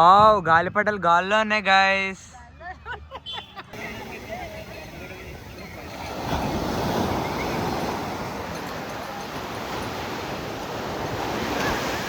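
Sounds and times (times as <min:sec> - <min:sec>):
sea surf washing onto beach: 0:03.8 - 0:12.0.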